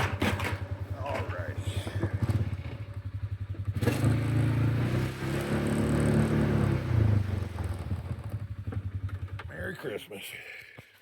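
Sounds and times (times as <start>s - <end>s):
engine chugging: 0.0s - 10.3s.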